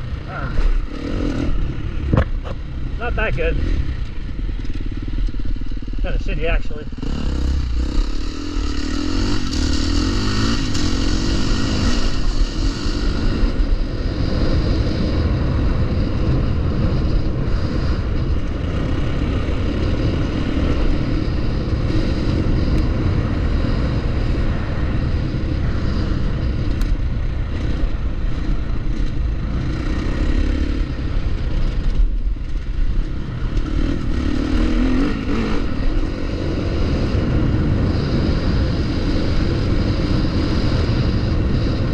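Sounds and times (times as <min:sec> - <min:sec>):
dirt bike engine revving: 0:00.0 - 0:26.8, 0:27.4 - 0:41.9.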